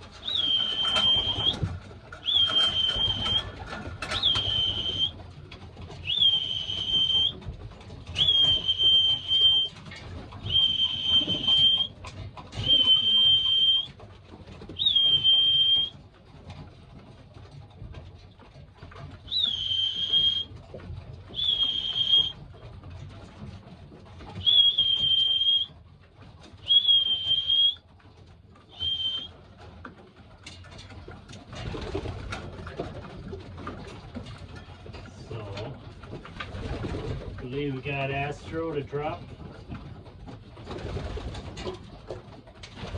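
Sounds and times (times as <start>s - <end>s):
single-note whistle: 0.3s - 1.6s, 8.2s - 9.7s, 10.5s - 11.9s, 12.6s - 13.9s, 14.8s - 15.9s, 19.3s - 20.5s, 21.4s - 22.3s, 24.4s - 25.7s, 26.7s - 27.8s, 28.7s - 29.3s.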